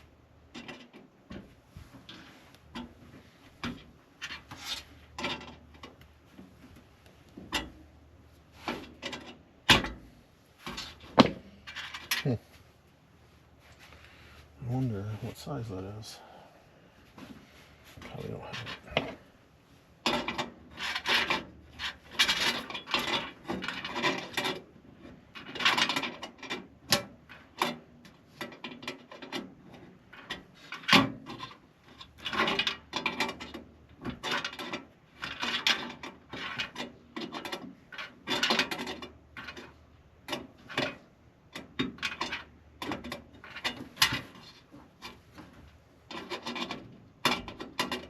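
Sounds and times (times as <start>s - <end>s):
tools scraping and clattering: 10.6s - 12.3s, 20.1s - 24.6s.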